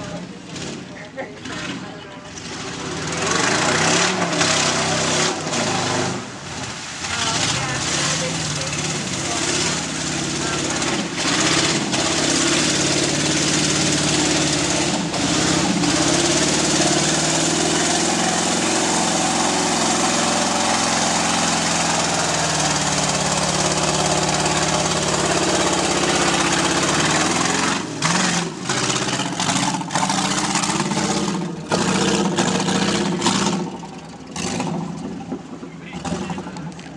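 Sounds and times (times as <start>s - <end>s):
truck engine revving hard: 0.0s - 36.8s.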